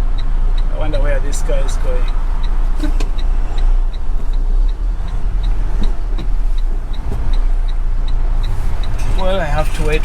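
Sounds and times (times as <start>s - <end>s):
diesel truck engine idling: 0.0s - 10.0s
flasher relay ticking: 0.0s - 10.0s.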